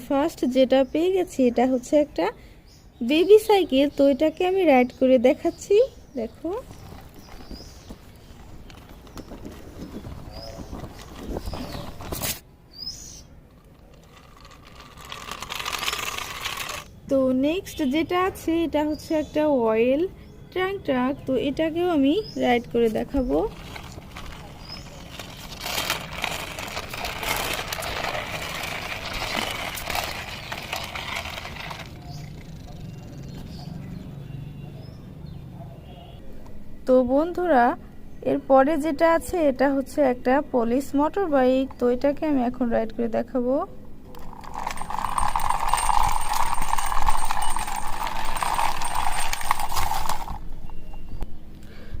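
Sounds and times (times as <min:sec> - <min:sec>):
toy truck wheels rattling: 0:13.5 - 0:16.9, 0:23.2 - 0:32.7, 0:44.1 - 0:50.5.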